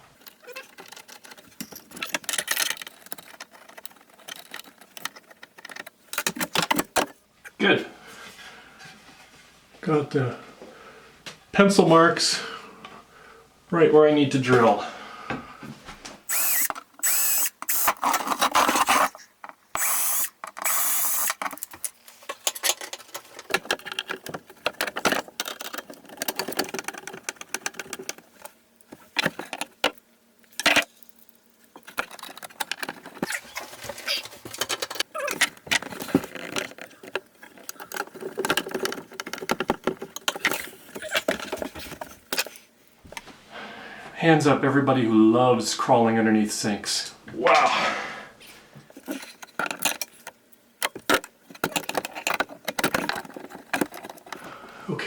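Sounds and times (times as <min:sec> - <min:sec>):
tools and hardware rattling: 0:00.2 - 0:07.2, 0:16.3 - 0:29.9, 0:31.7 - 0:42.6, 0:48.9 - 0:54.4
cordless drill drilling: 0:16.3 - 0:18.2, 0:19.8 - 0:21.4.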